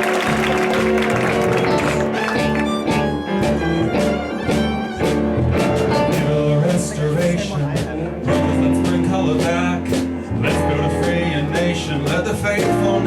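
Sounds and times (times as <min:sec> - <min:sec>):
audience applause: 0:00.0 - 0:05.0
live band playing instrumental: 0:00.0 - 0:13.0
violin: 0:00.0 - 0:13.0.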